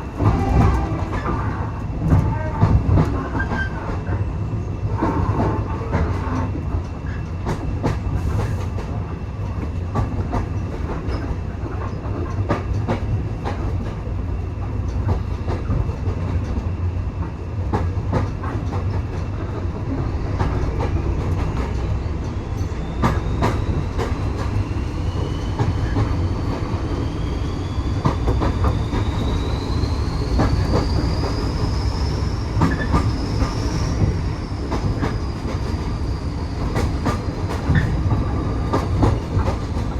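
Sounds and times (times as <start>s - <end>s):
railway carriage rumble: 0.0s - 39.9s
high wheel squeal: 22.5s - 36.8s.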